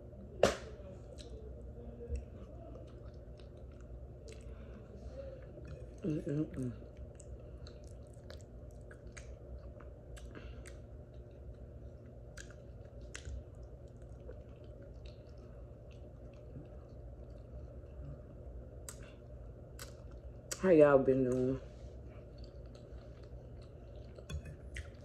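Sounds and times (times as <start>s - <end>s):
low steady hum: 0.0s - 25.0s
person chewing food: 1.0s - 20.6s, 21.8s - 25.0s
wet mouth clicks and smacks: 7.0s - 17.5s, 18.8s - 19.1s, 19.7s - 20.6s.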